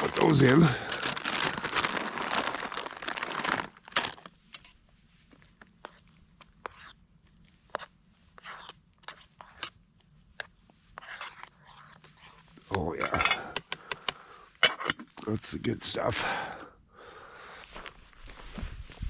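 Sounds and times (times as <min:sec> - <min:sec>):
plastic packet crinkling and tearing: 0:00.0 - 0:04.4.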